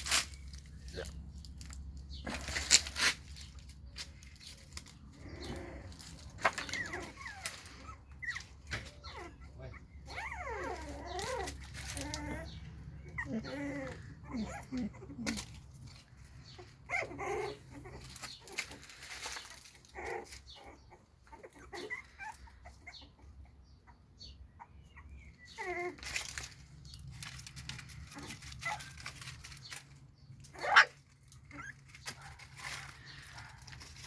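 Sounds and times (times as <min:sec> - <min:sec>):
puppy whining and yapping: 0:04.4 - 0:34.0
puppy yelp: 0:06.5 - 0:15.5, 0:16.6 - 0:18.7, 0:19.9 - 0:23.2, 0:23.8 - 0:26.5, 0:27.8 - 0:29.6, 0:30.4 - 0:33.7.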